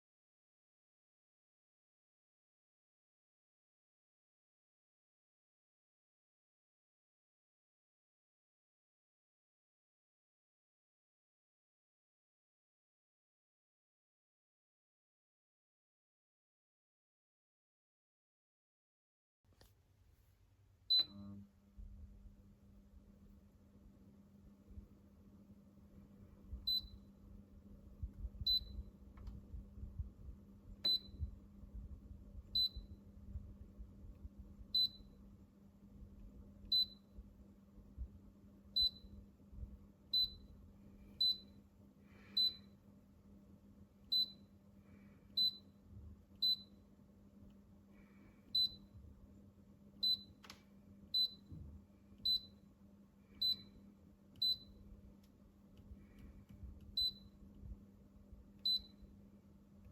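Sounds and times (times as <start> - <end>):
steady low hum: 20.4 - 59.9.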